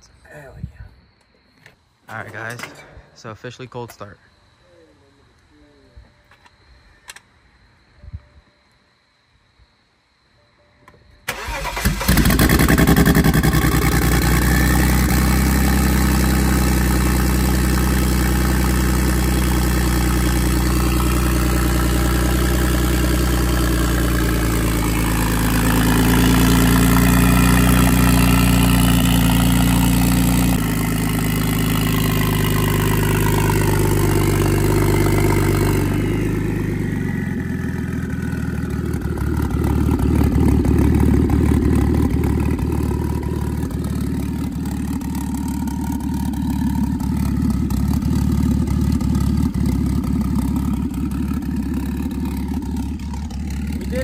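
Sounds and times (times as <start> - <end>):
car engine starting and idling: 11.2 - 54.0.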